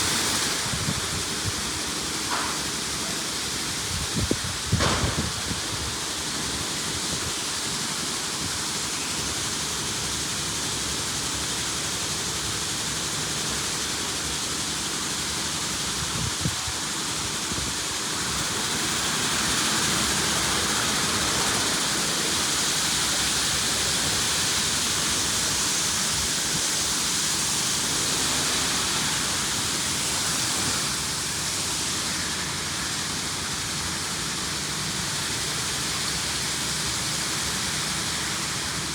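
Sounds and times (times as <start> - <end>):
water spraying on car: 11.8 - 38.9.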